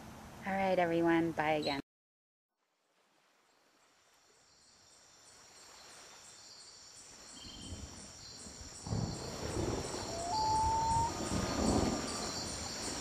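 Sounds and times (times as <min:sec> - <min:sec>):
insects chirping: 0:03.6 - 0:13.0
short rising whistle-like tone: 0:10.0 - 0:11.2.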